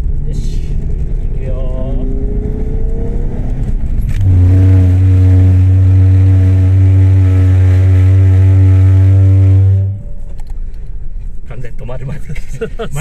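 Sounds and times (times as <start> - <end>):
brakes juddering with low buzz: 0.0 - 13.0
road noise: 0.0 - 13.0.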